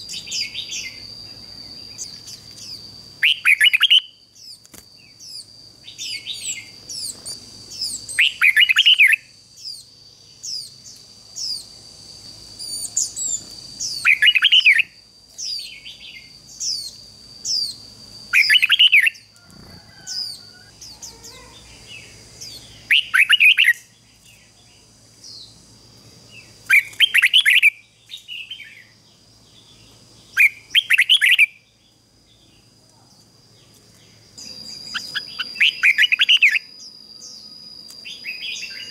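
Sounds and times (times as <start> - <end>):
steady thin high tone: 0.0 - 4.2, 34.4 - 38.9
bird singing warbled phrases: 0.0 - 11.8, 12.6 - 19.3, 20.0 - 25.6, 26.3 - 32.7, 34.0 - 38.9.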